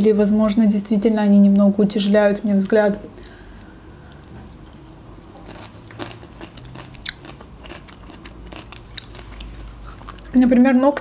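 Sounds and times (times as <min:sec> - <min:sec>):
wet crunchy chewing: 0:04.2 - 0:10.3.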